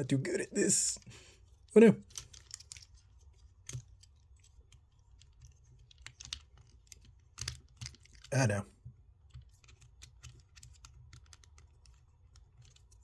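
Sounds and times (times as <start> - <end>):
plastic parts clicking: 2.0 - 3.0, 3.6 - 8.3.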